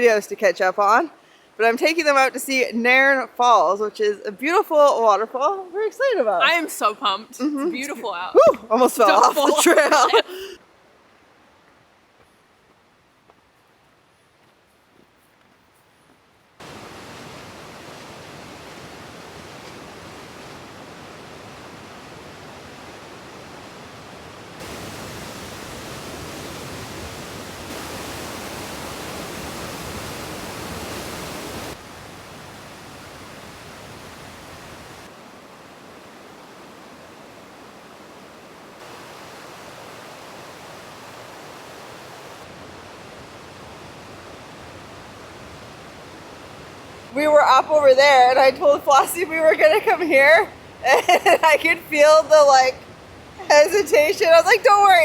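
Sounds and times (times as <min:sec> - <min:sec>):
waterfall roaring: 0:07.6 - 0:10.6, 0:16.6 - 0:55.0.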